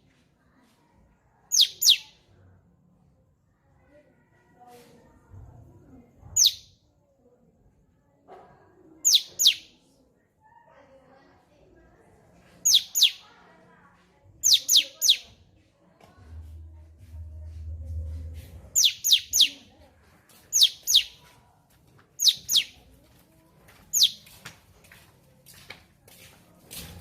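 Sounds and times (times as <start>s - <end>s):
low rumble: 16.2s - 18.8s.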